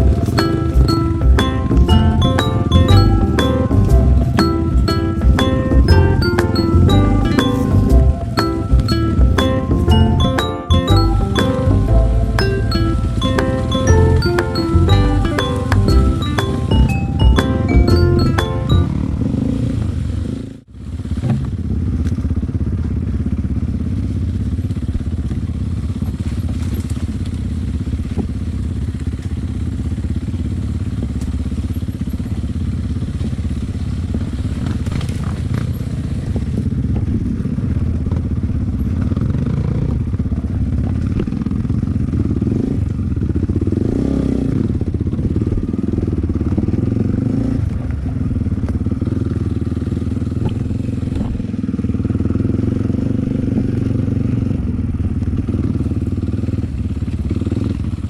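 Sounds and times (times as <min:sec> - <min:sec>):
dirt bike engine running: 0:18.9 - 0:58.0.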